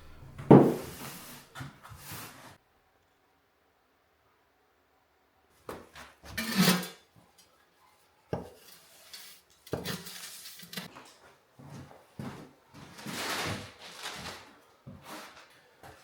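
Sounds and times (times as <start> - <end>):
rustling: 12.8 - 15.7.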